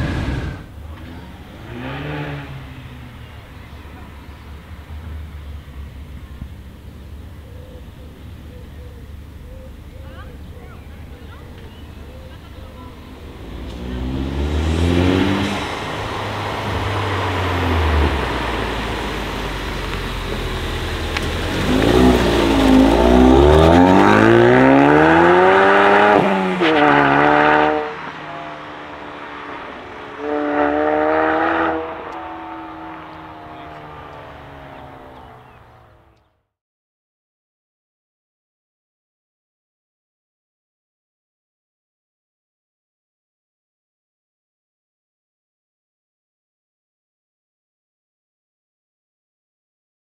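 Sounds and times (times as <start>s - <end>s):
car engine accelerating hard: 0.0s - 8.4s, 10.2s - 36.2s.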